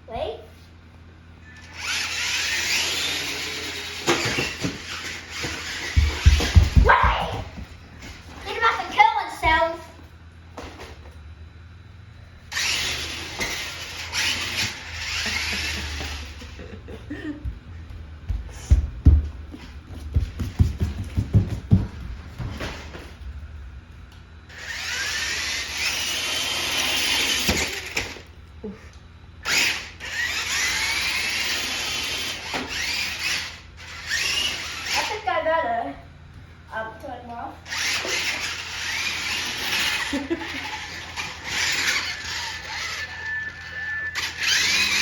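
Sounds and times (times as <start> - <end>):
toy truck electric motor whining: 1.4 - 6.8, 12.4 - 16.8, 24.5 - 28.4, 29.4 - 35.5, 37.6 - 45.0
sharp knocks and thumps: 5.6 - 7.8, 18.3 - 22.9.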